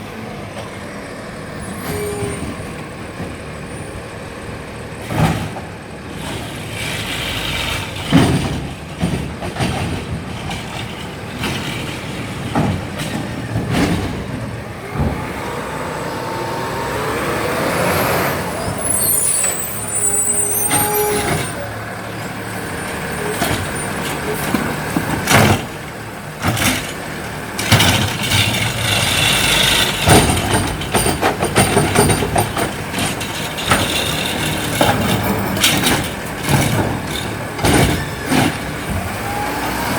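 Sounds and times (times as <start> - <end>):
diesel engine running: 0.0 - 39.9
air brake squeal: 1.6 - 2.6, 18.6 - 24.0
metal knocks and bangs: 5.0 - 15.7, 22.8 - 39.2.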